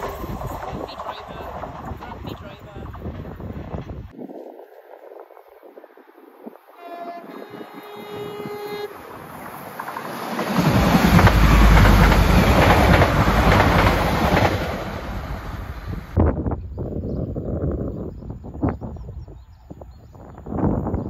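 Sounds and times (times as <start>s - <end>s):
train passing with rumble: 0.0s - 4.1s, 6.8s - 16.6s
two-tone train horn: 6.8s - 9.2s.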